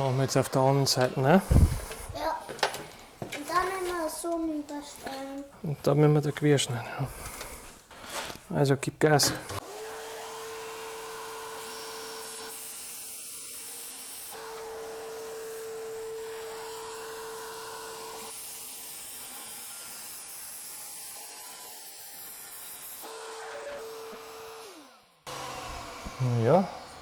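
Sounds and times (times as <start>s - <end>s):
vacuum cleaner hiss: 1.4s - 2.2s, 25.3s - 27.0s.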